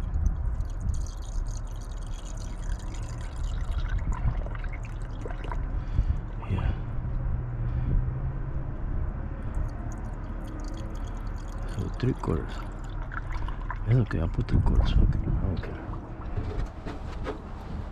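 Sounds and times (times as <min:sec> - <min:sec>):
water pouring and trickling: 0:00.0 - 0:06.4, 0:09.4 - 0:16.9.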